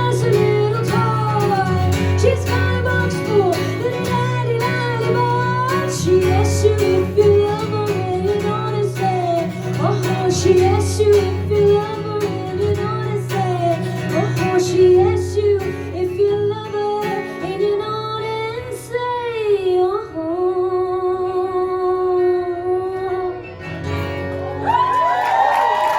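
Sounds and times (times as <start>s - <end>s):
woman singing: 0.0s - 23.5s
guitar: 0.0s - 25.9s.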